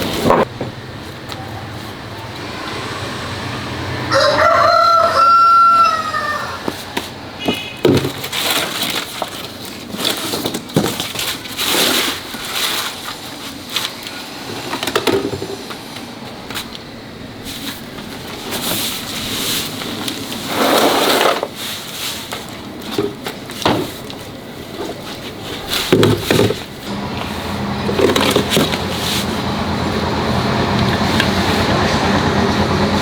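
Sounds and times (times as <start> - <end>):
knocks and clanks on car parts: 6.7 - 8.7, 14.5 - 15.8, 22.8 - 24.2, 25.9 - 26.8, 27.8 - 29.0.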